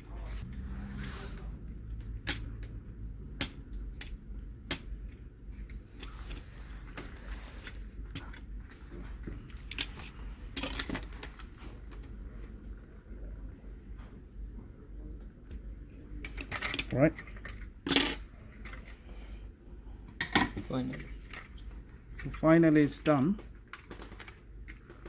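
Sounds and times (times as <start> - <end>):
low steady hum: 0.0 - 25.0
sharp clicks and snaps of tools: 2.0 - 2.8.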